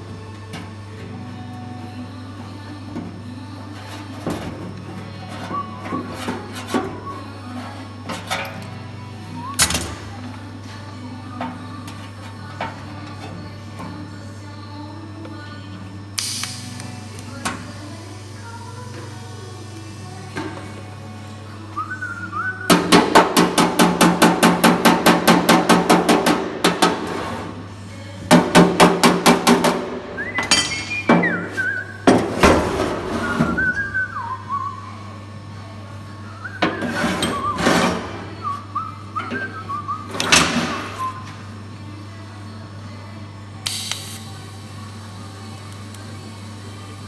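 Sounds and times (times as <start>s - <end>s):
person whistling a tune: 6.9s - 7.4s, 9.4s - 9.9s, 21.8s - 23.0s, 30.1s - 32.1s, 33.1s - 35.2s, 36.2s - 41.3s.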